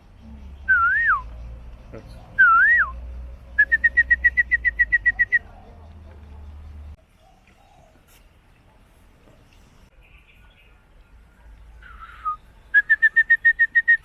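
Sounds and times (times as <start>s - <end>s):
person whistling: 0.7s - 1.2s.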